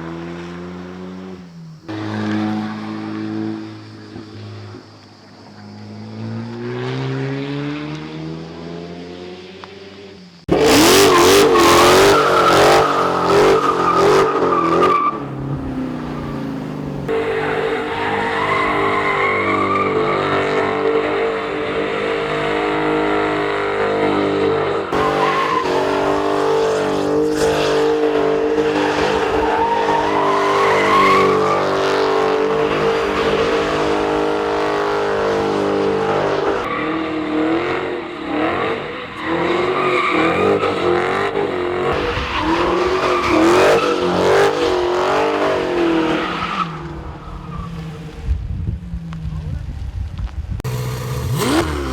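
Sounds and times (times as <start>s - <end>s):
supercar engine revving: 10.5s - 48.2s, 50.6s - 51.9s
engine note rising in pitch: 50.7s - 51.9s.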